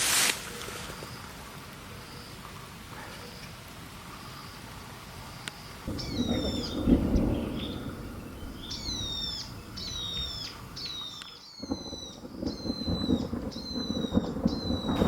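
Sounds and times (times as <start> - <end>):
thunder rumble: 5.9 - 15.0
bird whistling calls: 6.0 - 15.0.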